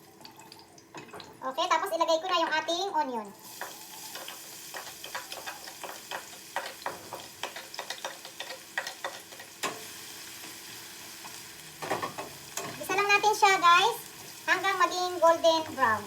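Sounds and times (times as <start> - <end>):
onion and garlic sizzling in oil: 0.0 - 16.0
utensil clicking and scraping pan: 3.6 - 9.9.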